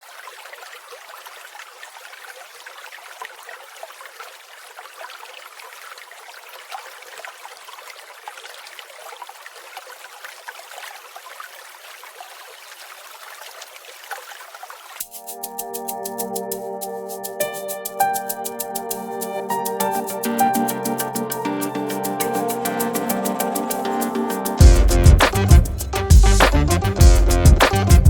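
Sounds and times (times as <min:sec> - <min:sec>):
stream babbling: 0:00.0 - 0:27.1.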